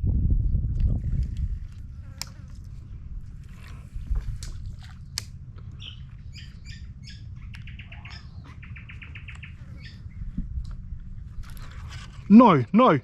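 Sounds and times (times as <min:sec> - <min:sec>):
steady low rumble: 0:00.0 - 0:13.0
birds chirping: 0:05.0 - 0:10.4.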